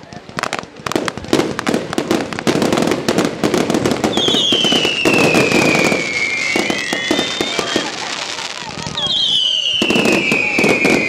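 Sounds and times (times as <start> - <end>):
fireworks crackling and popping: 0.0 - 11.0
firework whistle falling in pitch: 4.2 - 7.9, 8.9 - 11.0.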